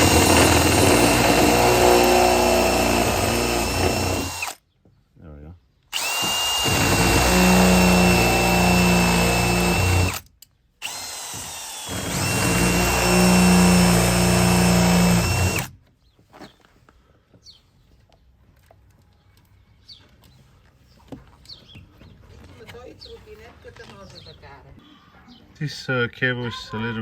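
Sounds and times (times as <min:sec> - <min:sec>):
power drill drilling rivets: 0:00.0 - 0:04.6, 0:05.9 - 0:15.8.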